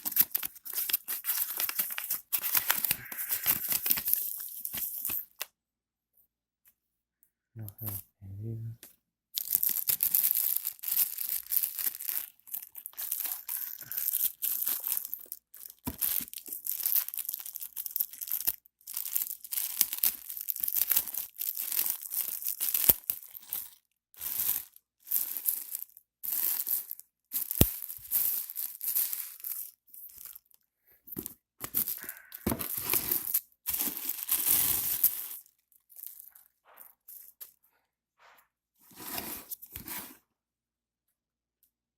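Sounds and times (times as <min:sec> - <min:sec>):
paper and plastic crinkling: 0:00.0 - 0:05.4, 0:09.4 - 0:30.5, 0:31.1 - 0:37.6.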